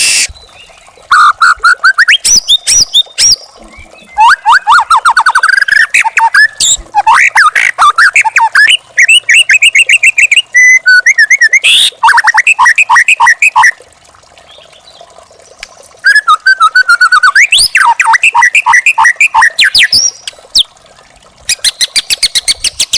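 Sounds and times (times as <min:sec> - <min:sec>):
bird song of whistled notes: 0:01.6 - 0:06.8, 0:16.0 - 0:20.7, 0:21.5 - 0:22.9.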